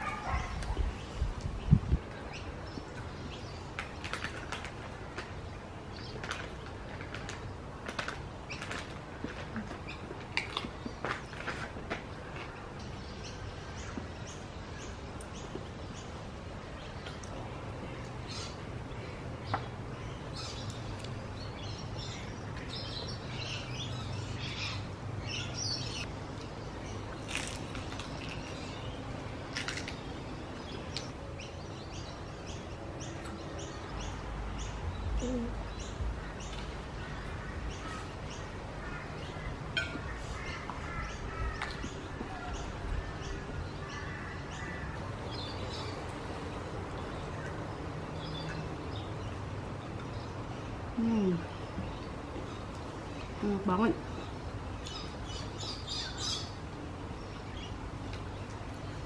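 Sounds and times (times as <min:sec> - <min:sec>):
garden birds chirping: 0:00.0 - 0:59.0.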